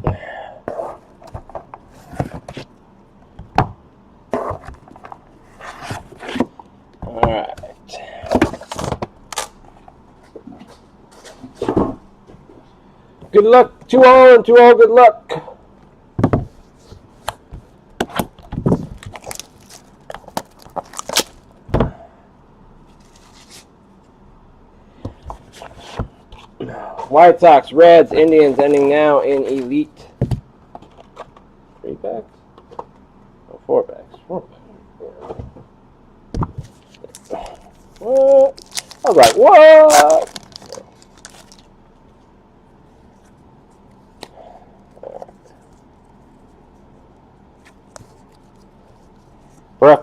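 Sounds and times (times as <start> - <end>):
wrapping or cardboard rustling: 18.7 - 21.5, 36.6 - 41.7.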